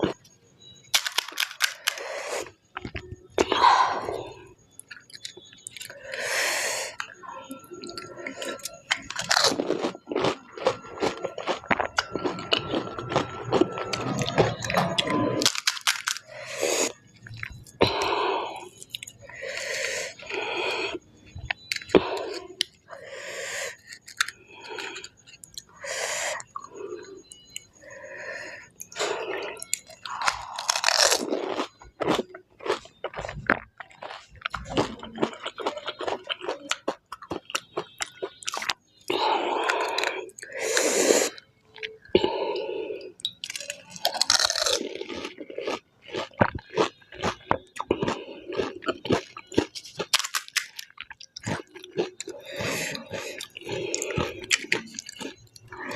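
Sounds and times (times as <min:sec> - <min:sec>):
crisp shells crunching: 0:00.9 - 0:02.0, 0:08.6 - 0:14.0, 0:15.1 - 0:16.7, 0:29.7 - 0:36.9, 0:43.4 - 0:55.9
wet chewing: 0:01.0 - 0:27.9, 0:28.7 - 0:55.9.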